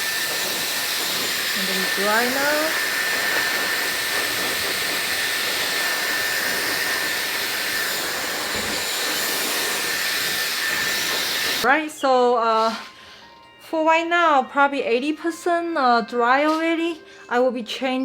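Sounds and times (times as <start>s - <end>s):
hair dryer blowing: 0.0s - 11.7s.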